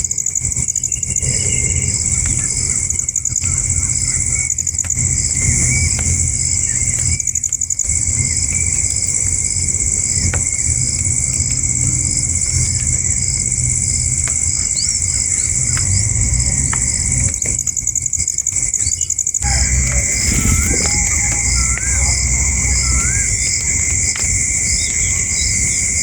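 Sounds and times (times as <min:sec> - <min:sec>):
insects droning: 0:00.0 - 0:26.0
bird chirps: 0:18.8 - 0:26.0.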